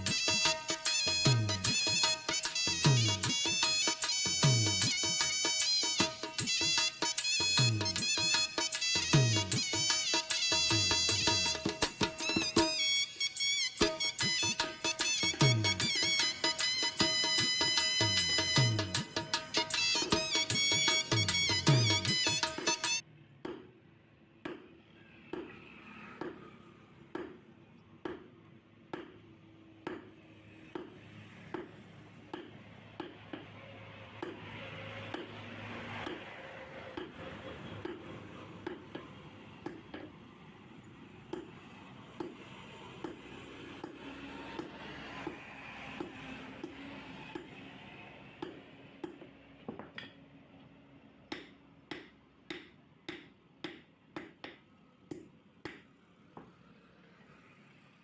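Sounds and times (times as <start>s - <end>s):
hammer striking iron on anvil: 23.4s - 23.7s, 24.4s - 24.7s, 25.3s - 25.6s, 29.8s - 30.1s, 30.7s - 33.5s, 34.2s - 34.5s, 37.8s - 40.2s, 41.3s - 41.6s, 42.2s - 42.4s, 48.4s - 50.2s, 51.3s - 55.8s.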